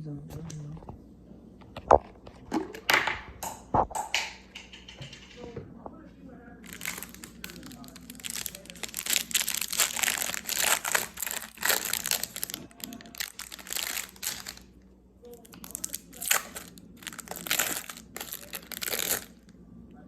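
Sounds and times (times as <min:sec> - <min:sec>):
plastic packaging crinkling: 0:06.6 - 0:14.8, 0:15.4 - 0:19.4.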